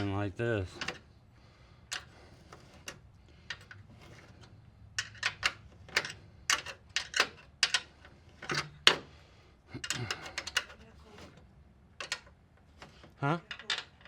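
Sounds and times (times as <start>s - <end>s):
hand tools clicking on metal: 9.8s - 10.8s.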